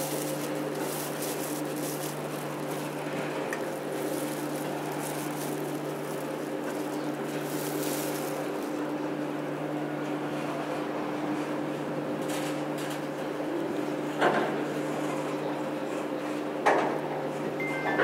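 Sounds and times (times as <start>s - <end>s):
freight wagons rumbling on rails: 0.0s - 10.8s
steady low hum: 0.0s - 11.4s.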